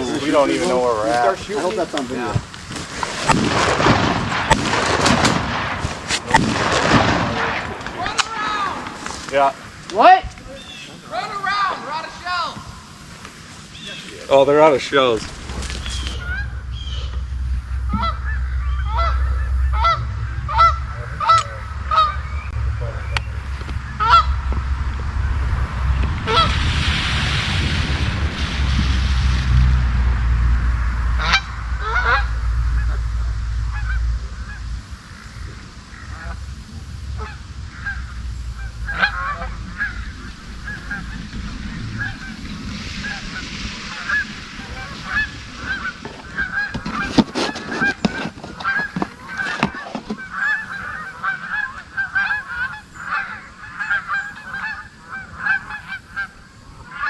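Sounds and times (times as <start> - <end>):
low rumble: 0.0 - 10.7, 11.7 - 49.5
geese honking: 0.0 - 25.6, 26.2 - 26.6, 31.1 - 57.0.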